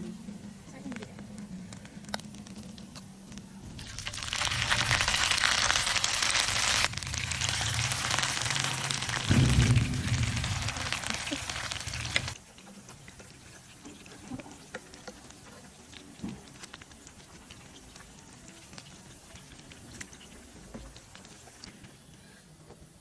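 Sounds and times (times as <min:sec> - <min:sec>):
fritters sizzling in hot oil: 0:01.1 - 0:22.2.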